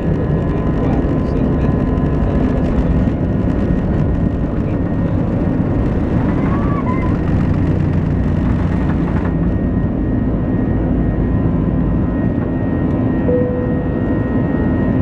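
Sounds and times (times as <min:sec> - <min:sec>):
high whine: 0:00.0 - 0:09.8, 0:13.1 - 0:15.0
jet engines rumbling in cabin: 0:00.0 - 0:15.0.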